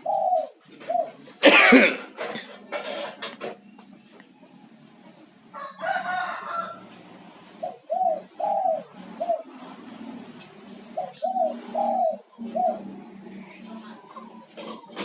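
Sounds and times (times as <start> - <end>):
dove cooing: 0.0 - 2.6, 5.5 - 15.0
rough noisy bird call: 5.4 - 15.0.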